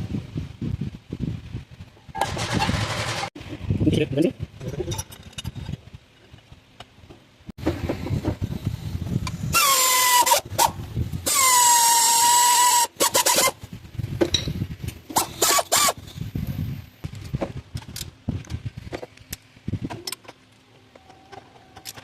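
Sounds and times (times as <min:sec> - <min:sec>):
metal tools clinking and rattling: 0:04.6 - 0:05.8.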